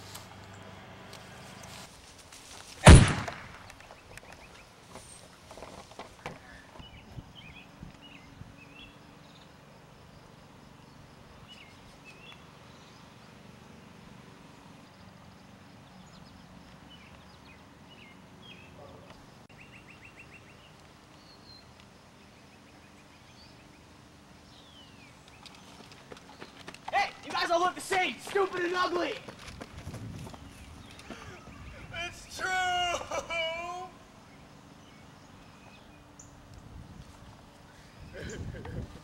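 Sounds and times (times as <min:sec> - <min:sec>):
outdoor background hiss: 0:00.0 - 0:39.0
bird chirps: 0:03.7 - 0:05.3, 0:10.7 - 0:13.3.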